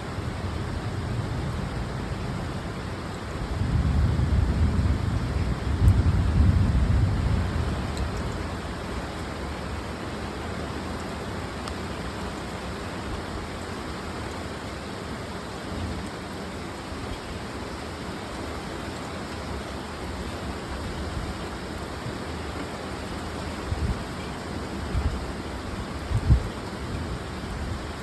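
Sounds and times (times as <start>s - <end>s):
steady rain hiss: 0.0s - 28.0s
low thunder rumbling: 3.4s - 8.4s.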